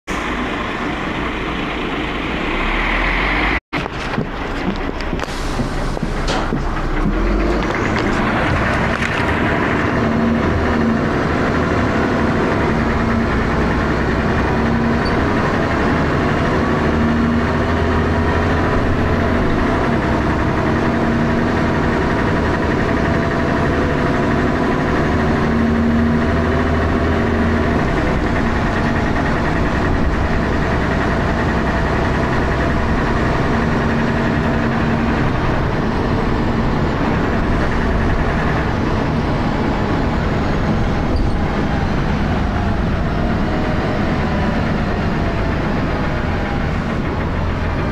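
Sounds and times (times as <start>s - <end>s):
bus engine running: 0.0s - 47.9s
loud knocking noise: 43.4s - 47.9s.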